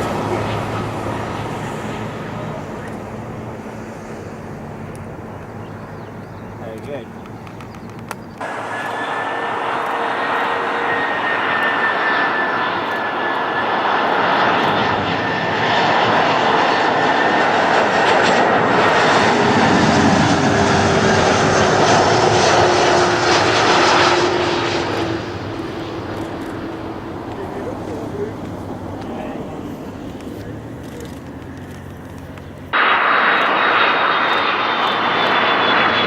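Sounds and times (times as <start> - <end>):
high jet whine: 0.0 - 6.8, 7.4 - 36.0
jet airliner passing: 0.0 - 36.0.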